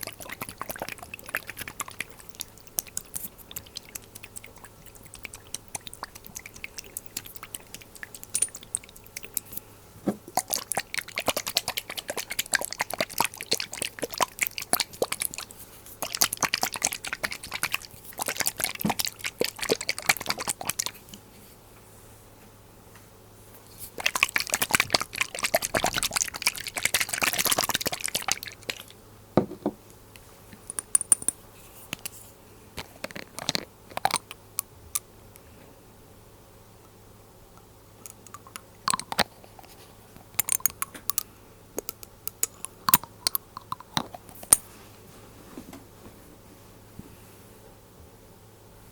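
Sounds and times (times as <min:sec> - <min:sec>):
glass taps: 0:29.4 - 0:29.8.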